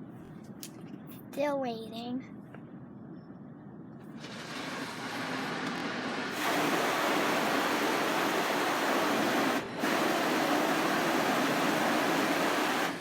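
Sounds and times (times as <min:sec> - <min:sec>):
car wash machinery rushing: 0:04.2 - 0:13.0.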